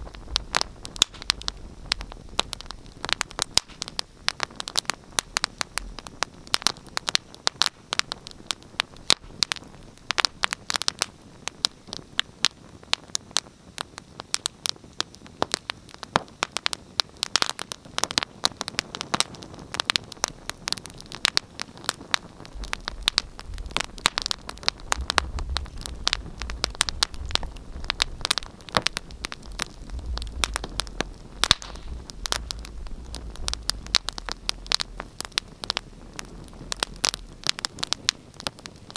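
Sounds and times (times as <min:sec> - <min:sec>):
wood fire crackling: 0:00.0 - 0:38.9
low rumble: 0:22.4 - 0:37.6.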